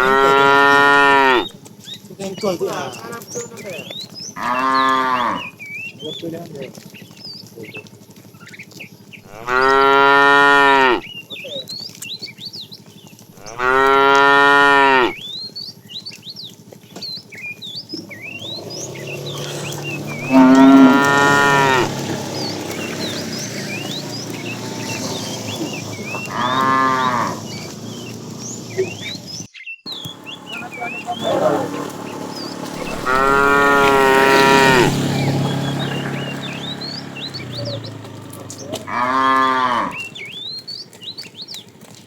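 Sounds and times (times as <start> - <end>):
cattle mooing: 0.0 - 1.5, 2.7 - 5.6, 9.2 - 11.1, 13.4 - 15.2, 18.0 - 29.1, 30.5 - 40.3.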